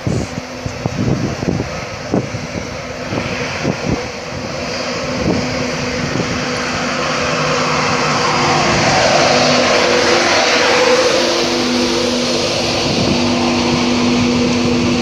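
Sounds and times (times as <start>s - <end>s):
steady hum: 0.0s - 15.0s
train running: 0.0s - 15.0s.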